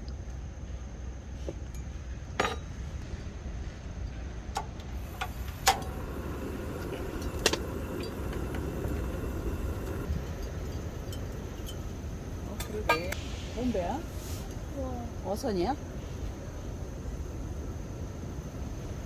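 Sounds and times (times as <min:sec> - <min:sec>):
low background rumble: 0:00.0 - 0:19.0
dishes and utensils clinking: 0:01.7 - 0:02.8, 0:09.9 - 0:13.2.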